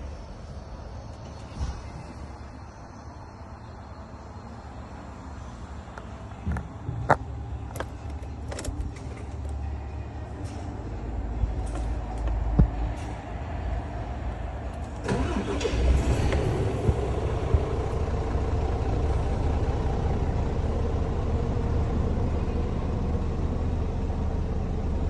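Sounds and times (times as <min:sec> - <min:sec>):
diesel truck engine starting and idling: 0:00.0 - 0:25.0.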